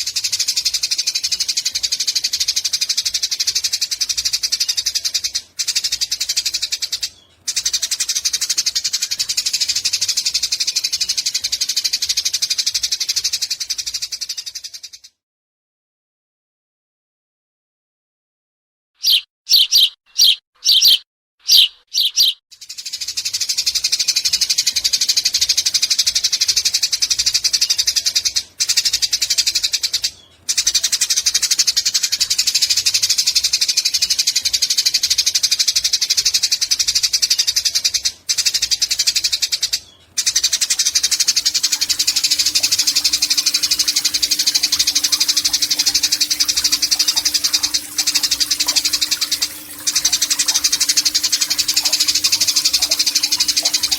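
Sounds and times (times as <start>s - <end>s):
sparrow chirping: 19.0s - 22.4s, 40.2s - 53.9s
rapid buzzing bird chatter: 19.0s - 30.0s, 35.5s - 53.9s.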